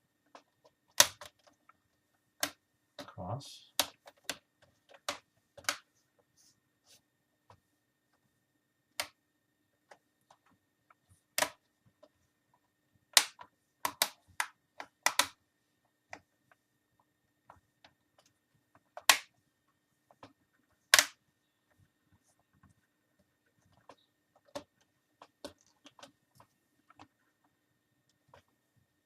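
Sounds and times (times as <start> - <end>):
plastic clips snapping into place: 20.9 - 21.2.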